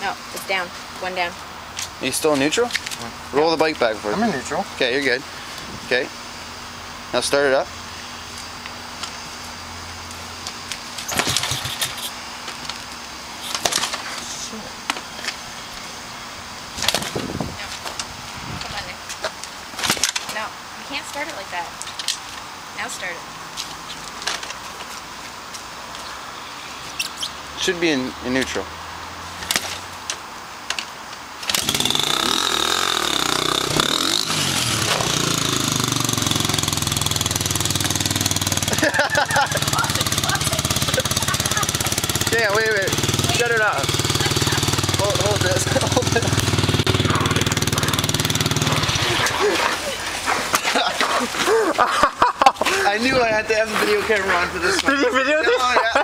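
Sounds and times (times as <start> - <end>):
dirt bike start attempts: 11.0 - 12.2, 31.4 - 55.8.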